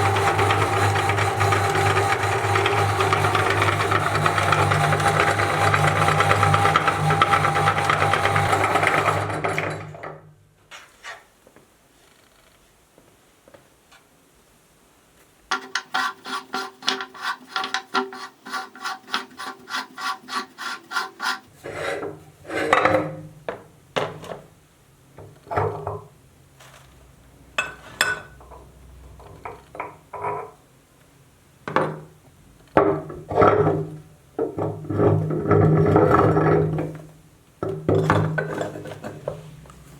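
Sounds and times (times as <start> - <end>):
meat grinder rasping and squealing: 0.0 - 9.4.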